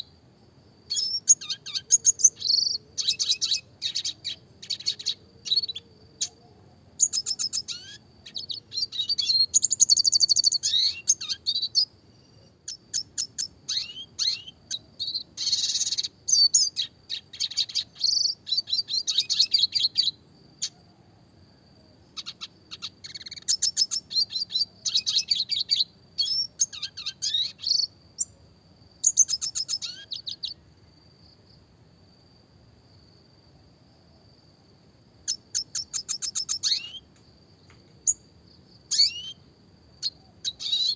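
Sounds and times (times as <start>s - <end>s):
bird singing in rapid chirps: 0.9s - 6.4s, 7.0s - 20.8s, 22.2s - 28.4s, 29.0s - 30.6s, 35.2s - 37.1s, 38.0s - 38.3s, 38.9s - 39.4s, 40.0s - 40.9s.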